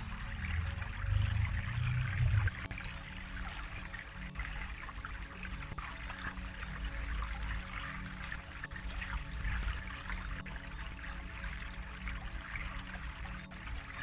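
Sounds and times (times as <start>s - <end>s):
low rumble: 0.0s - 2.8s
water trickling and splashing: 0.0s - 14.0s.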